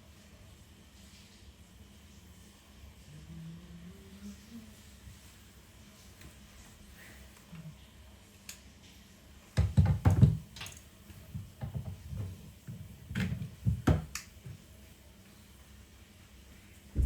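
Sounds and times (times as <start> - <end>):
objects knocking and bumping: 9.6 - 10.4, 11.3 - 14.1.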